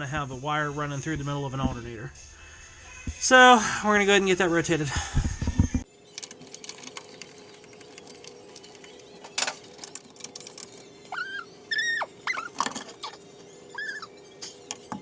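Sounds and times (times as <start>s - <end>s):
hand tools clicking and knocking: 9.3s - 13.2s
short high squeaks: 11.1s - 14.2s.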